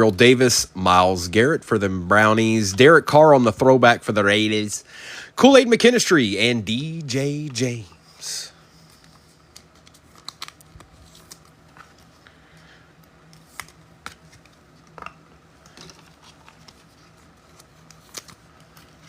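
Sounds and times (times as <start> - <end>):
low steady hum: 0.0 - 19.0
trading cards clicking and rustling: 6.7 - 7.9, 8.8 - 19.0.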